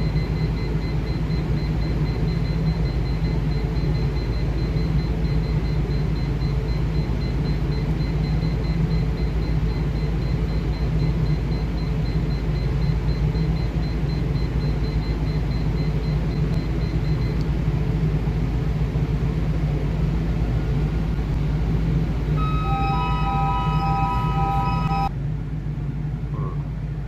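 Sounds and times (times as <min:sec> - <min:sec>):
alarm of steady tones: 0:00.0 - 0:17.4, 0:22.4 - 0:25.1
faint rapidly pulsing beep: 0:00.0 - 0:17.4, 0:22.4 - 0:25.1
engine room machinery rumble: 0:00.0 - 0:27.0.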